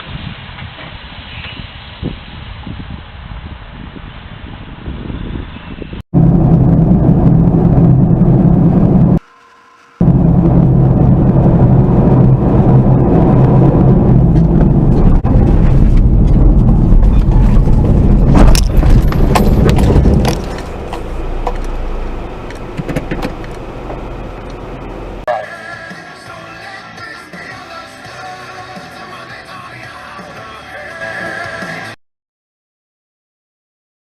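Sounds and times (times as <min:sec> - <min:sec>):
car engine and road rumble: 0:05.0 - 0:25.4
sharp knocks and rattles: 0:15.8 - 0:21.8, 0:22.4 - 0:24.1.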